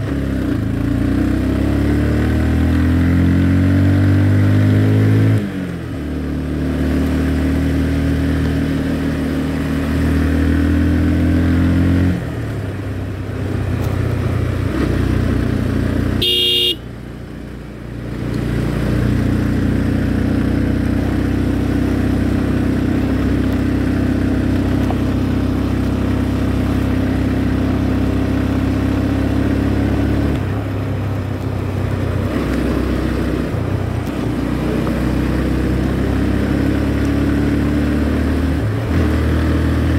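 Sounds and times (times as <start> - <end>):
motorcycle engine running: 0.0 - 39.9
short horn beep: 16.2 - 16.9.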